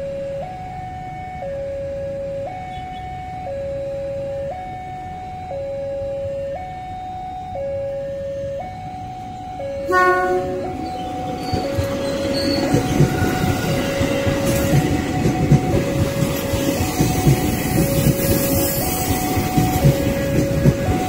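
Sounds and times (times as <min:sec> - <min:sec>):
two-tone warning alarm: 0:00.0 - 0:21.0
passing train rumble: 0:08.6 - 0:21.0
train horn: 0:09.8 - 0:11.8.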